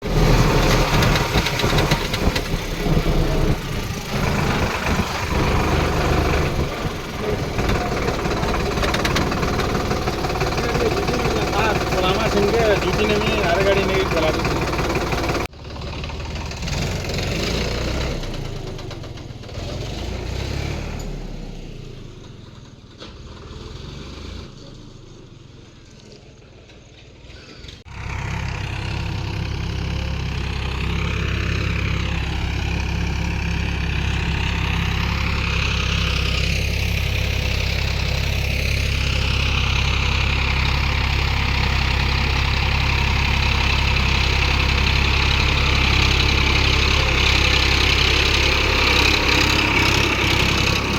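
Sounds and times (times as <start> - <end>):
tractor diesel engine running: 0.0 - 23.6, 24.6 - 50.9.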